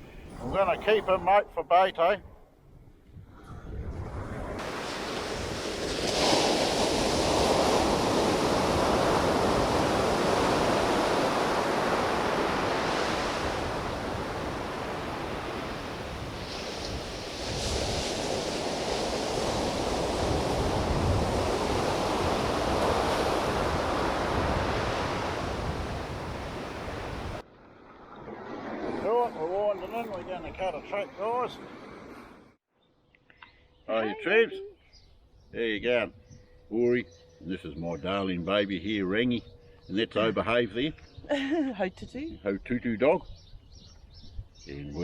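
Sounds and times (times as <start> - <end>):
wind on microphone: 0.0 - 27.4, 43.2 - 44.8
ocean surf breaking on beach: 4.4 - 32.4.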